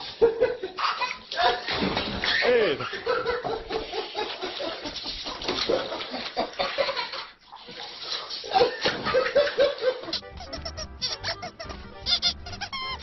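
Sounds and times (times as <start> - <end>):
water splashing in a barrel: 0.8 - 10.0
person laughing: 8.6 - 13.0.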